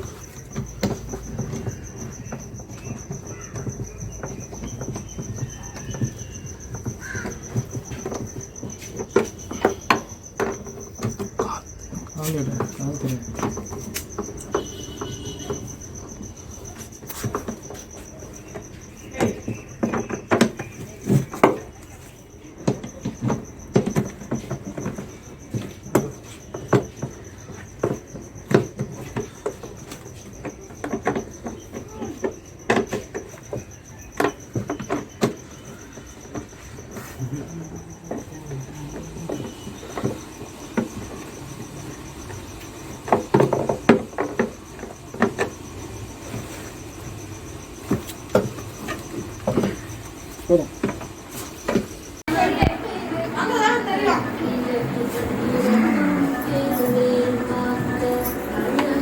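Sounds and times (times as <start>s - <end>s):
cricket trilling: 0.0s - 59.0s.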